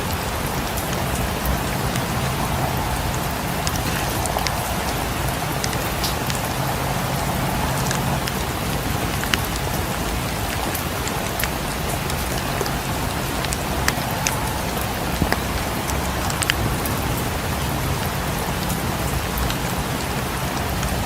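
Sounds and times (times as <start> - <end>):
steady rain: 0.0 - 21.0.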